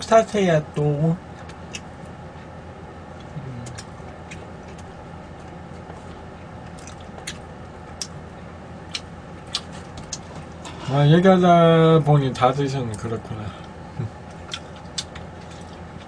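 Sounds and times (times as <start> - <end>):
low background hum: 0.0 - 16.0
person chewing food: 1.4 - 10.8, 13.6 - 16.0.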